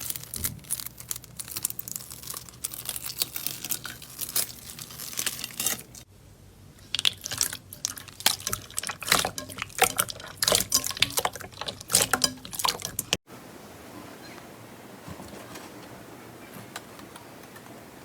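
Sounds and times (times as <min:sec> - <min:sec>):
slime squishing: 0:00.0 - 0:06.1, 0:06.8 - 0:13.2.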